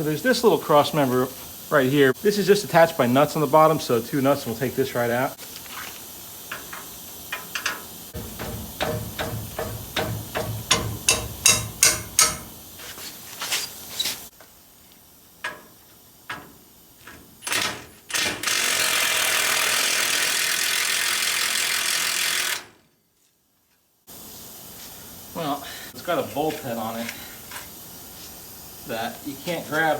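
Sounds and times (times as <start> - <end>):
steady hiss: 0.0 - 17.7, 24.1 - 29.9
ratchet wrench clicking: 6.5 - 12.6
knocks: 8.2 - 12.5.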